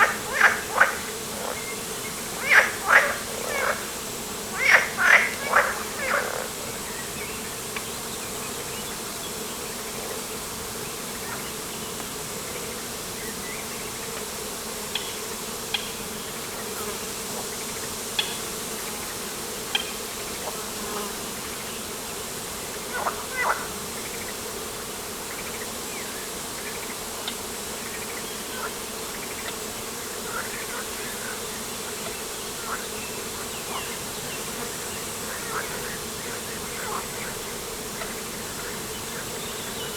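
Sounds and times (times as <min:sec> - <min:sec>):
bird calls: 0:00.0 - 0:09.0.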